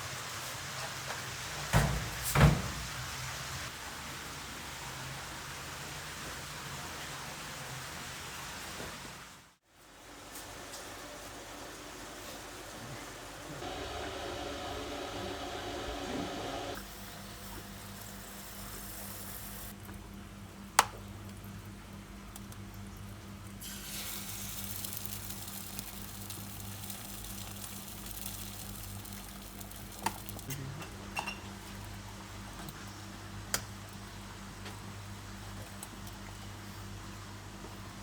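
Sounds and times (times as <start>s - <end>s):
food sizzling in a frying pan: 23.6s - 30.5s.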